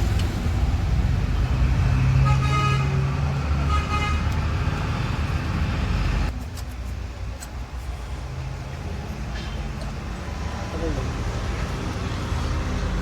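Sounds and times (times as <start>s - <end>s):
road traffic passing: 0.0s - 13.0s
vehicle horn: 2.2s - 3.0s, 3.6s - 4.3s.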